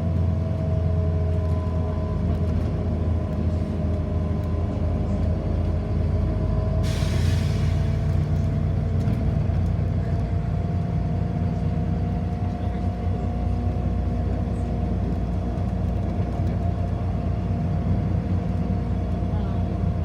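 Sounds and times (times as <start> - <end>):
bus engine hum with whine: 0.0 - 20.0
air brake hiss: 6.8 - 8.5.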